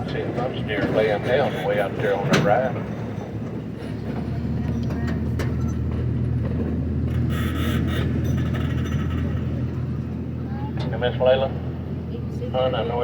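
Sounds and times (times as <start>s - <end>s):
train engine humming: 0.0s - 13.0s.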